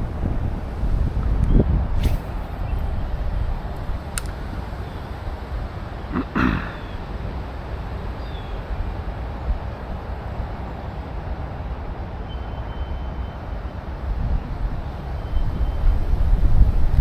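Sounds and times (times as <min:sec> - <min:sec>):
hiss: 0:02.0 - 0:02.7
short chirp: 0:02.0 - 0:02.8
thin high whistle: 0:02.0 - 0:02.9.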